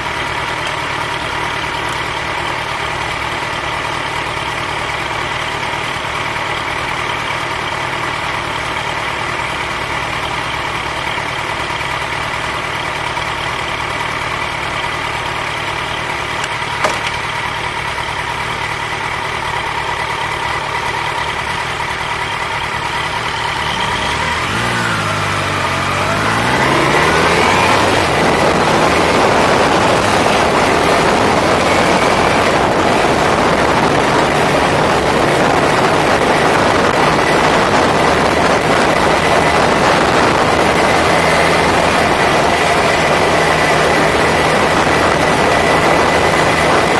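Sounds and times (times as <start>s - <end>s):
motorcycle engine idling and revving: 0.0s - 46.9s.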